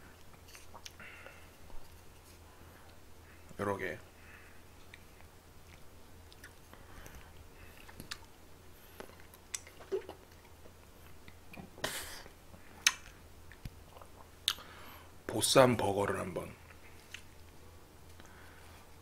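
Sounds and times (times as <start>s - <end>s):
chewing food: 0.2s - 2.0s, 4.8s - 8.3s, 8.9s - 11.7s.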